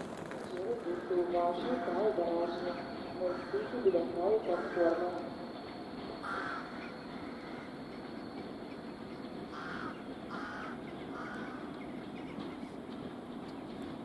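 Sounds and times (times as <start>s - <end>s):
crow cawing: 6.2s - 7.7s, 9.5s - 11.7s.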